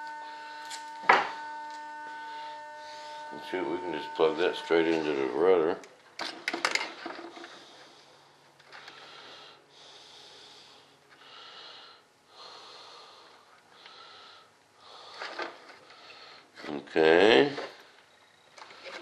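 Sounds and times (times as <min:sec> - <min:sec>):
person breathing through nose: 0:07.4 - 0:16.5.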